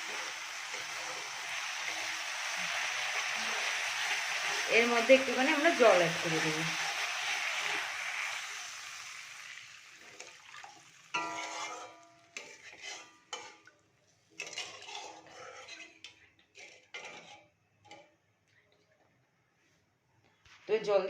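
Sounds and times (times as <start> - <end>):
hiss of water in hot pan: 0.0 - 11.7
utensil scraping metal pan: 11.1 - 13.6, 14.4 - 18.0
ringing metal clank: 11.2 - 12.2.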